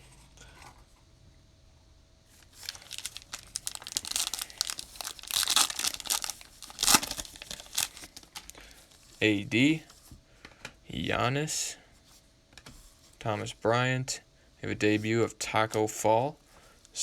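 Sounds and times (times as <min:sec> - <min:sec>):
wrapper crinkling: 0:02.4 - 0:08.6
foil card pack tearing: 0:02.5 - 0:08.5.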